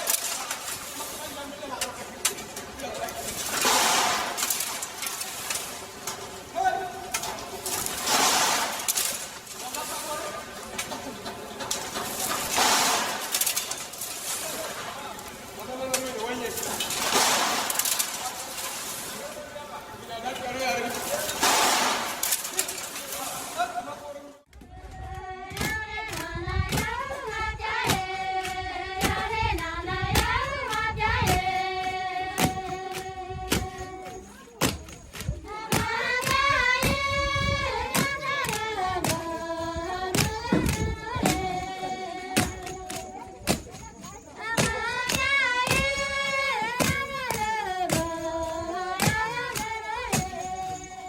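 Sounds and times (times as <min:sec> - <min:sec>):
person singing melody: 0:35.5 - 0:43.3.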